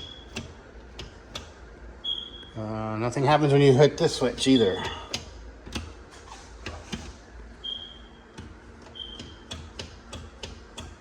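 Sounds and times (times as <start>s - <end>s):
light switches clicking: 0.0s - 1.6s.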